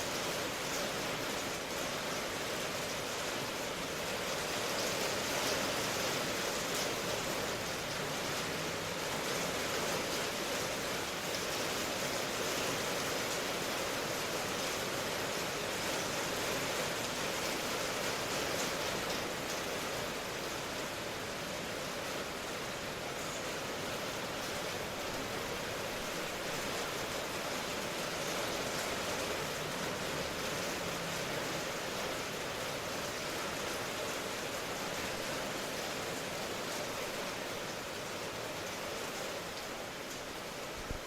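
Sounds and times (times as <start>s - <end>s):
steady rain hiss: 0.0s - 41.0s.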